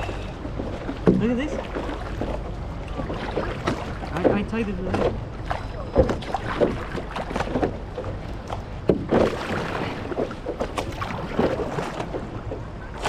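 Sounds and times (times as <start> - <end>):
paddle splashing water: 0.0 - 13.0
water washing: 0.0 - 13.0
wind: 0.0 - 13.0.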